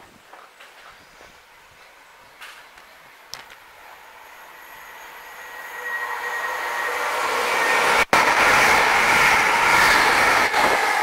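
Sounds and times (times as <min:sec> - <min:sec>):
passenger train passing: 0:01.2 - 0:11.0.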